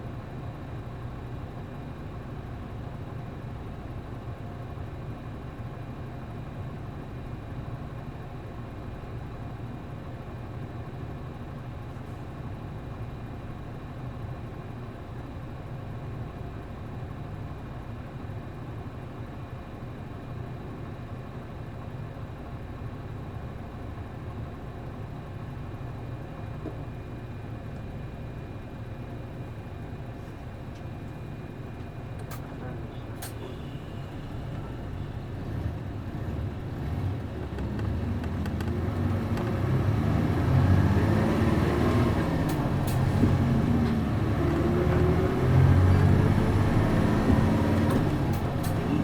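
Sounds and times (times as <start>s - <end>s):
bus diesel engine running: 0.0s - 49.0s.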